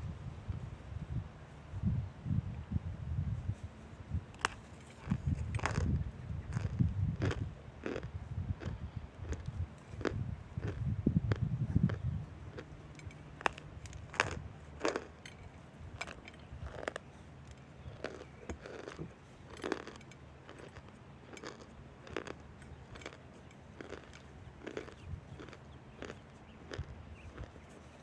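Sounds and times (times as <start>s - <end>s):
faint low hum: 0.0s - 28.0s
crunching hard food: 4.2s - 28.0s.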